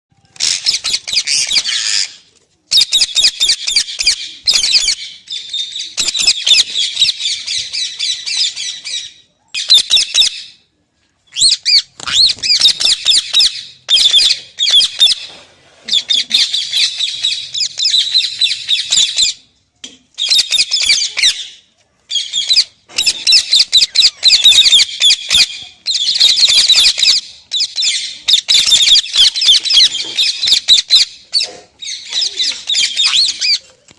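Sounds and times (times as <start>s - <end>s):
parrot squawking: 11.3s - 15.3s, 22.2s - 33.6s.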